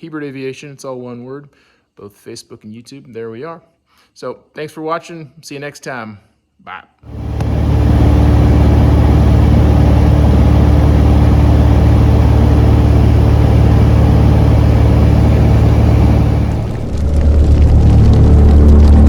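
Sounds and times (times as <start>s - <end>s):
loud engine-like drone: 7.1s - 19.0s.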